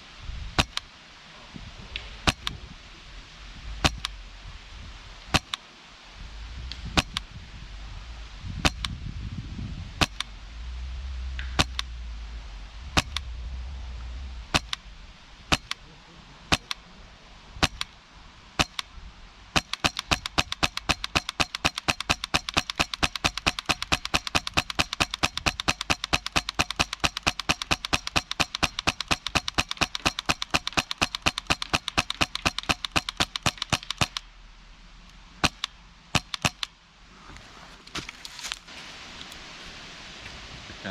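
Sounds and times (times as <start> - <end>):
wind rumble on microphone: 0.0 - 20.6
airsoft rifle shots: 0.6 - 0.9, 2.2 - 2.6, 3.8 - 4.3, 5.3 - 5.6, 6.8 - 7.4, 8.6 - 9.0, 10.0 - 10.4, 11.4 - 12.0, 12.9 - 13.4, 14.5 - 14.9, 15.5 - 15.9, 16.5 - 16.9, 17.6 - 18.0, 18.6 - 34.3, 35.4 - 36.8.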